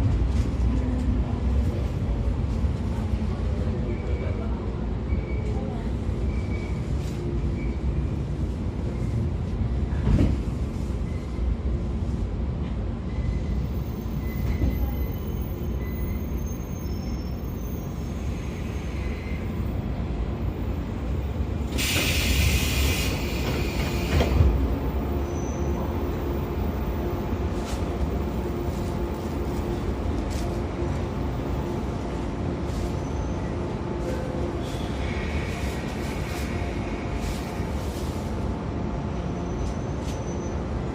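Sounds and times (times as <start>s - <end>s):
train wheels rumbling: 0.0s - 40.9s
loud air hiss: 21.7s - 24.3s.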